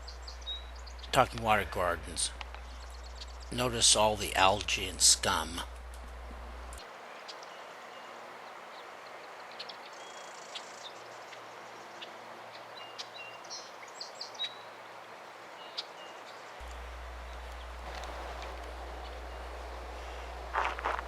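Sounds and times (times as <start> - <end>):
bird chirps: 0.0 - 4.5, 9.5 - 14.7
outdoor background hiss: 0.0 - 21.0.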